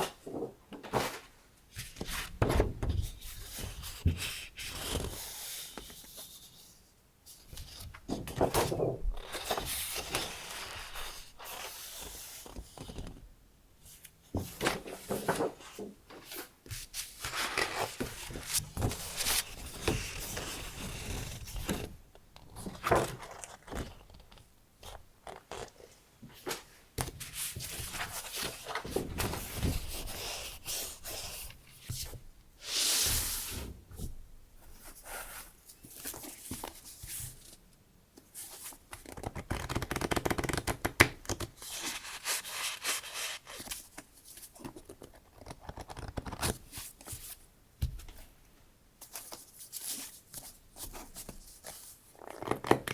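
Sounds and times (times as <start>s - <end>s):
paper rustling and sliding: 0.0s - 6.0s, 14.4s - 21.9s, 26.4s - 33.8s, 41.6s - 44.1s.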